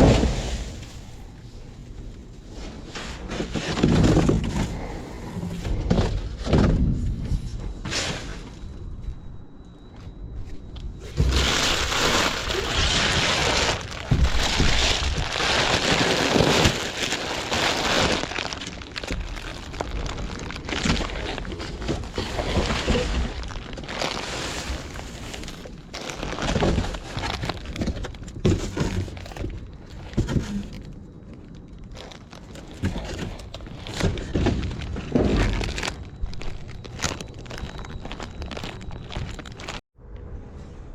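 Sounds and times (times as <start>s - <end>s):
trash crinkling and rustling: 0.0s - 9.2s, 10.0s - 39.8s
items knocking and clattering: 3.3s - 4.9s, 5.6s - 7.4s, 11.1s - 24.2s, 26.1s - 31.0s, 32.0s - 39.8s.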